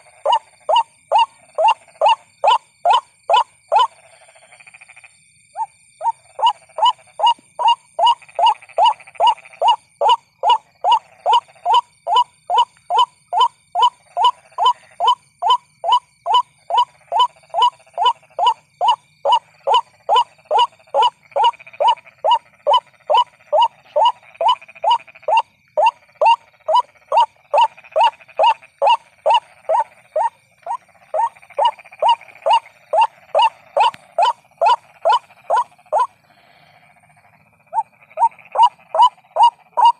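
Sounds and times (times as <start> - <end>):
waterhen calling: 0.0 - 3.9, 5.6 - 36.1, 37.7 - 39.9.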